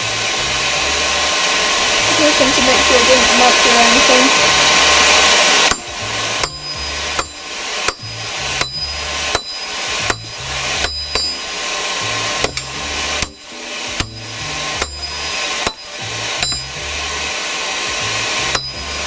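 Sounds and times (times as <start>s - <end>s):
hammer striking steel on anvil: 4.5s - 17.2s, 18.2s - 19.0s.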